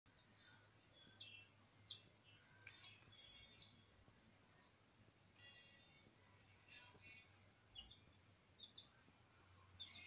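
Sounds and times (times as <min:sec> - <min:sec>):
faint high bird calls: 0:00.2 - 0:04.8.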